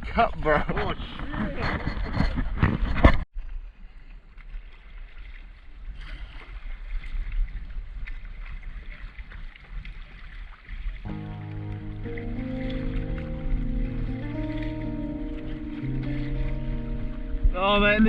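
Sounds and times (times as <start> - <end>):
wind rumble on microphone: 0.0 - 3.7
water splashing around canoe: 0.0 - 18.0.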